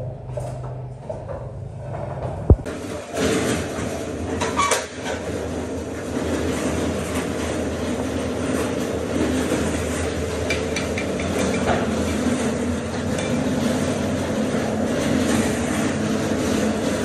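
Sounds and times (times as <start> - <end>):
machine low rumble: 0.0 - 4.4.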